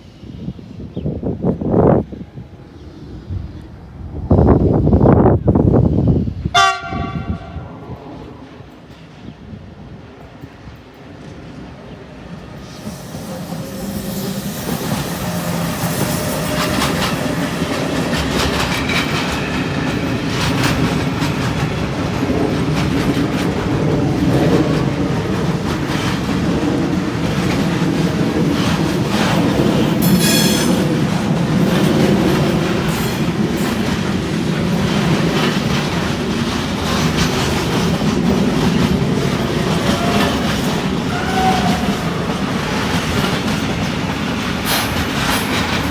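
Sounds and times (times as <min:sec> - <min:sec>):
freight train rumbling past: 0:00.0 - 0:45.9
train wheel squeal: 0:12.4 - 0:21.6, 0:28.3 - 0:34.0, 0:39.3 - 0:45.9
wheels clicking over rail joints: 0:14.1 - 0:45.9.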